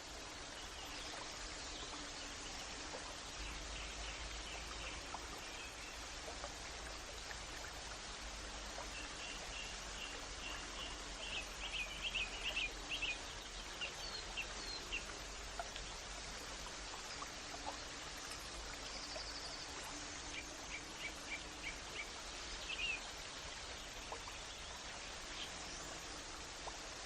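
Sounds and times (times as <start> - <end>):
rushing water: 0.0 - 27.0.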